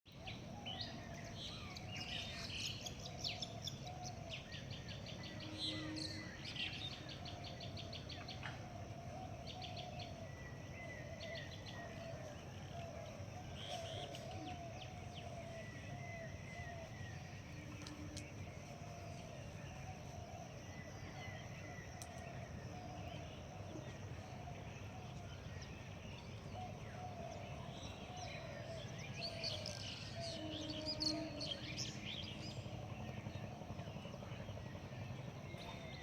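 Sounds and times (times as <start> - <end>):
steady low background noise: 0.1 - 36.0
wavering low bird call: 26.6 - 32.1.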